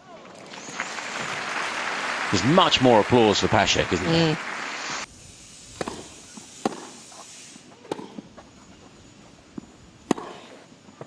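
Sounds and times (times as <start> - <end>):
tennis ball knocks on grass: 5.8 - 6.9.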